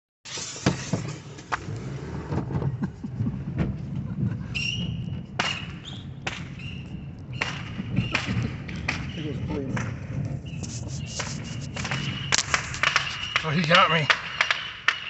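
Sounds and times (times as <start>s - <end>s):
fireworks bangs and pops: 2.4s - 15.0s
high whistling tones: 4.5s - 8.4s, 10.4s - 15.0s.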